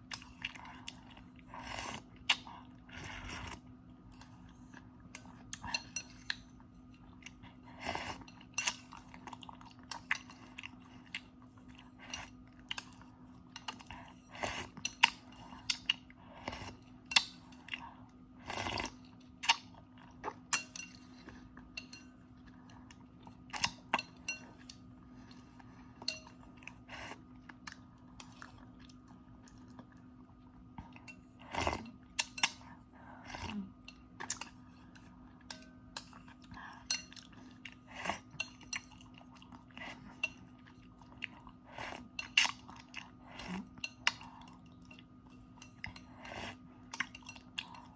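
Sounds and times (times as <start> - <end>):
chewing and crunching: 0.0 - 47.9
faint steady hum: 0.0 - 47.9
cutlery clicking on bowl: 35.5 - 36.2.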